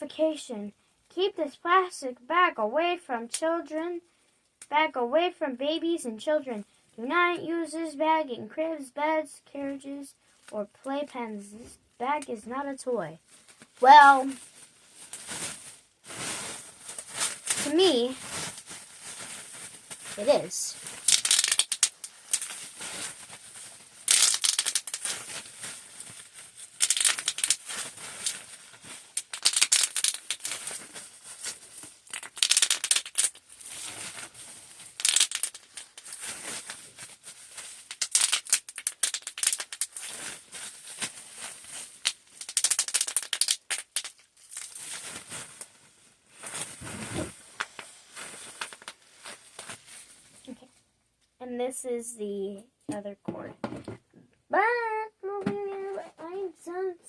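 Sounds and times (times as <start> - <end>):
plastic bag crinkling: 13.3 - 50.5.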